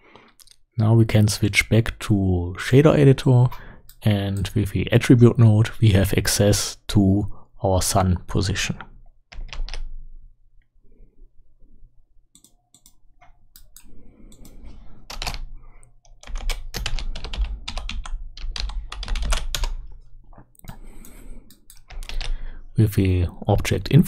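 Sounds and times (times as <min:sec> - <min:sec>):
computer keyboard typing: 0:09.3 - 0:09.9, 0:13.6 - 0:19.9, 0:20.6 - 0:22.4.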